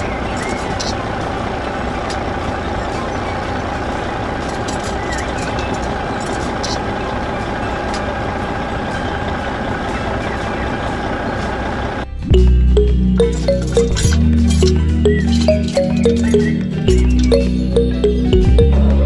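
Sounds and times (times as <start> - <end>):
music: 7.3 - 19.0.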